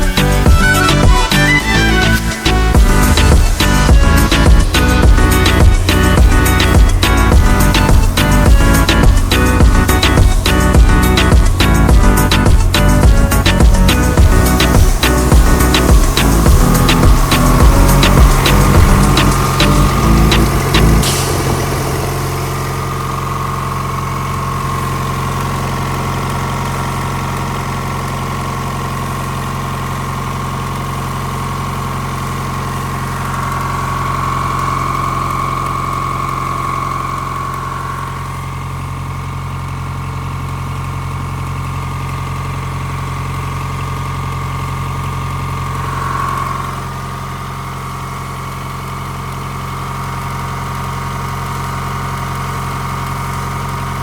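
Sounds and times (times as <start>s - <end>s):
high whine: 0.0s - 27.3s, 31.4s - 39.1s, 45.3s - 47.7s
bus engine idling: 0.0s - 47.9s.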